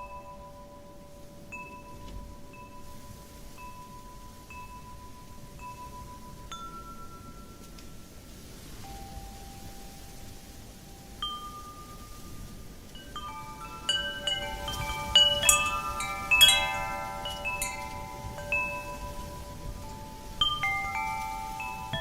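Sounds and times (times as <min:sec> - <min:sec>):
low rush of wind: 0:00.0 - 0:22.0
wind chimes tinkling: 0:00.0 - 0:22.0.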